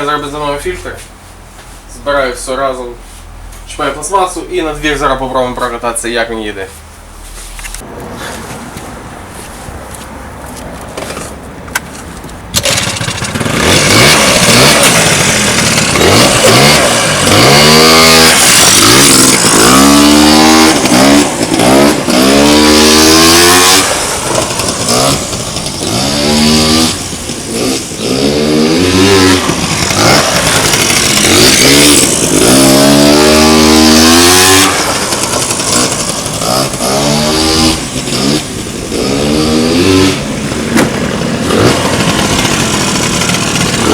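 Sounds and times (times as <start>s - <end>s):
scooter engine revving: 12.5s - 43.9s.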